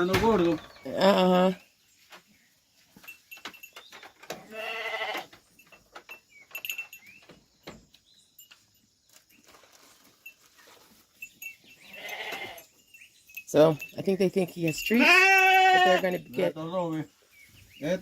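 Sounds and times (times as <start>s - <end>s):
light knocks and shuffling: 1.6s - 4.5s
sheep bleating: 4.4s - 5.3s, 11.9s - 12.6s, 14.9s - 16.2s.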